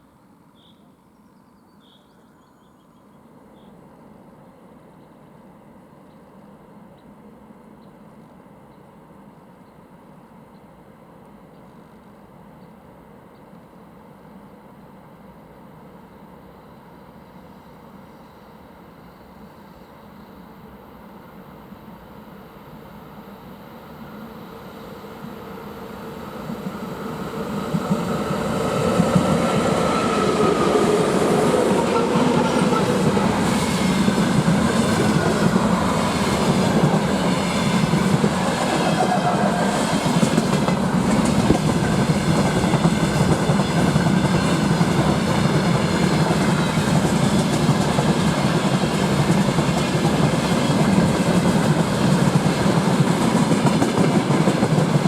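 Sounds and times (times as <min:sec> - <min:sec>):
freight train passing: 0:13.8 - 0:55.0.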